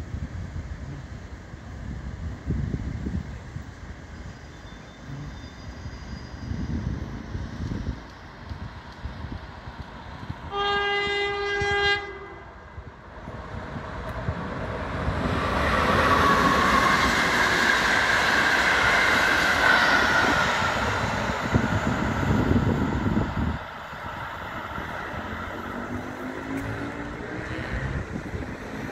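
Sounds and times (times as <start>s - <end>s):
passenger train passing: 0.0s - 28.9s
train horn: 10.5s - 12.6s.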